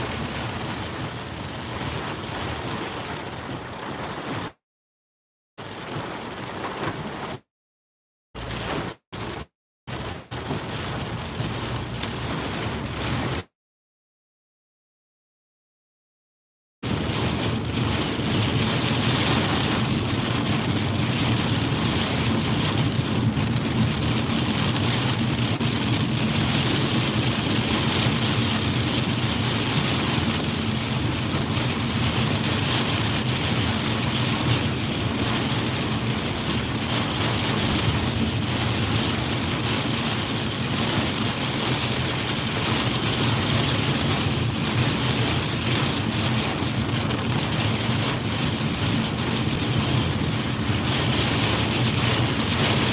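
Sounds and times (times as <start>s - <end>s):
heavy rain on a car: 0.0s - 4.6s, 5.6s - 7.5s, 8.4s - 13.5s, 16.8s - 52.9s
road and engine rumble: 8.4s - 13.5s.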